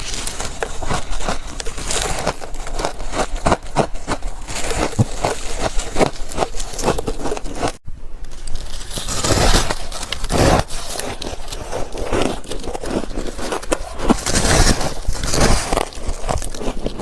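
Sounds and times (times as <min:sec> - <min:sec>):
frost being bitten and crunched: 0:00.0 - 0:17.0.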